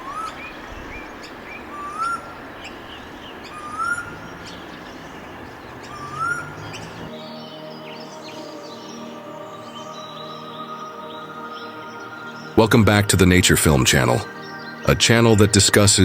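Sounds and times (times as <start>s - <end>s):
bird whistling rising note: 0.0s - 12.6s
background hiss: 0.0s - 16.0s
bird chirps and trills: 0.0s - 16.0s
music: 5.8s - 16.0s.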